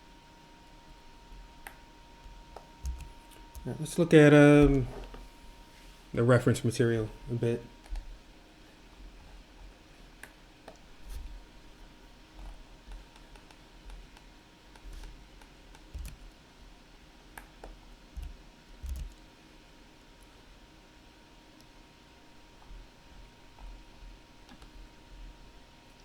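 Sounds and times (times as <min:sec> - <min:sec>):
computer keyboard keystrokes: 0:02.6 - 0:03.7, 0:14.7 - 0:16.3, 0:18.2 - 0:19.2.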